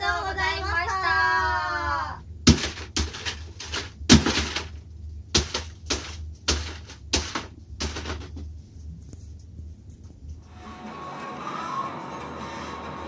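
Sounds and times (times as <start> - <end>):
hammer smashing a disc: 2.5 - 4.8, 5.4 - 8.4.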